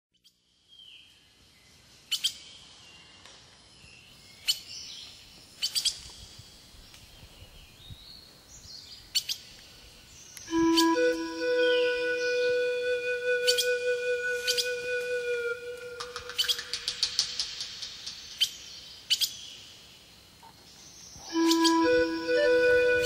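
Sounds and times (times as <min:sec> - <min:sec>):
bird chirps: 0:03.9 - 0:19.8, 0:20.7 - 0:22.5
music with held notes: 0:10.5 - 0:16.3, 0:21.3 - 0:23.0
bird twittering: 0:21.2 - 0:22.5.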